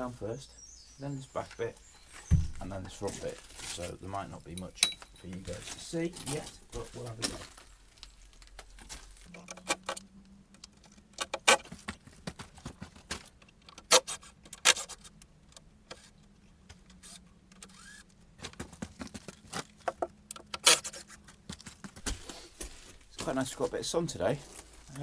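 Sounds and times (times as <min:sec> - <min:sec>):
clinks and knocks of tools and timber: 0:04.4 - 0:07.5, 0:08.4 - 0:15.7, 0:18.4 - 0:22.0.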